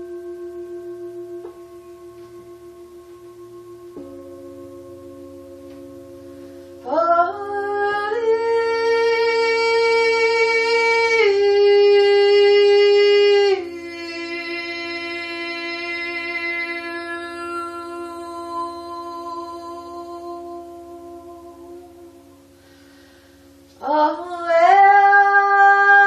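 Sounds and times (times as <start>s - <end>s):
singing bowl ringing drone: 0.0s - 26.0s.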